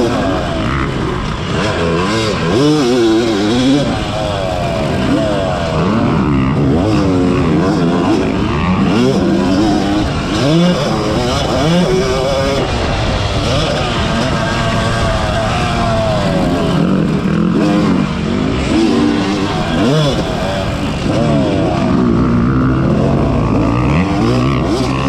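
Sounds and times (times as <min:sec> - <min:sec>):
two-stroke motocross engine revving: 0:00.0 - 0:25.0.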